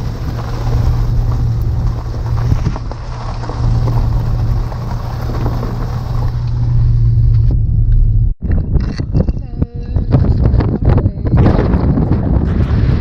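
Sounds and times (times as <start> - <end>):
road noise hiss: 0.0 - 7.5
car engine drone: 0.0 - 13.0.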